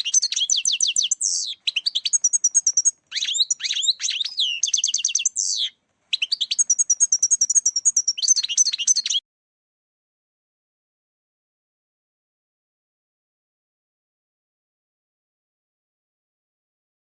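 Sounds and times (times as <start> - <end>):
finch singing: 0.0 - 9.2.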